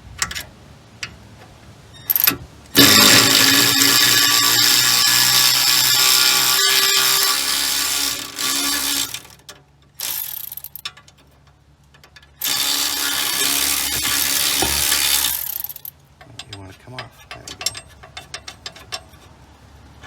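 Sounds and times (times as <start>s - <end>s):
power tool motor whine: 2.8s - 9.3s, 12.4s - 15.7s.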